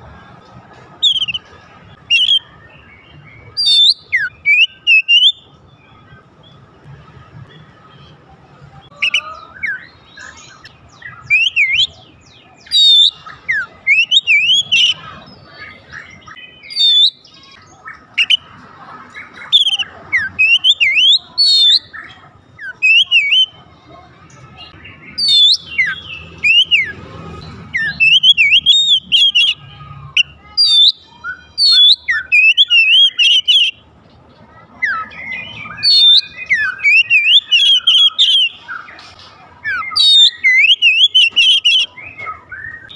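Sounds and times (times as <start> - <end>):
magpie-robin singing whistled phrases: 1.0 - 6.2, 8.9 - 18.5, 19.1 - 23.6, 24.5 - 27.0, 27.6 - 29.6, 30.2 - 33.8, 34.8 - 39.0, 39.6 - 42.9.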